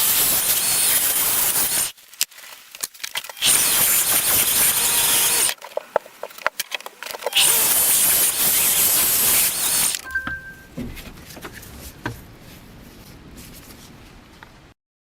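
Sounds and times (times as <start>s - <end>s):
handling clicks and knocks: 10.0s - 12.2s.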